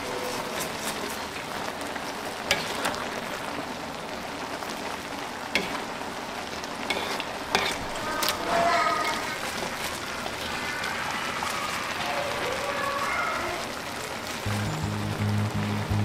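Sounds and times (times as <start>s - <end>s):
spatula stirring and scraping: 0.0s - 3.2s, 5.5s - 6.0s, 6.7s - 12.7s
noodles sizzling in a wok: 0.0s - 16.0s.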